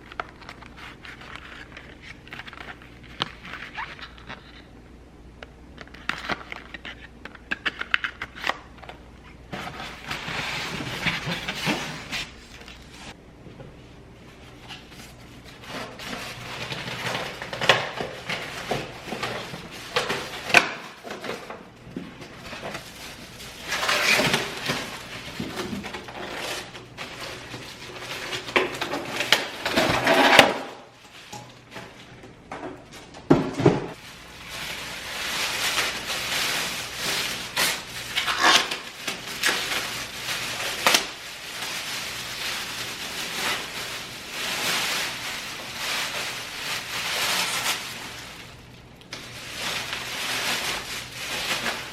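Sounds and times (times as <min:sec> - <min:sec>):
household items clattering: 0:15.6 - 0:48.5
rustling: 0:33.9 - 0:51.9.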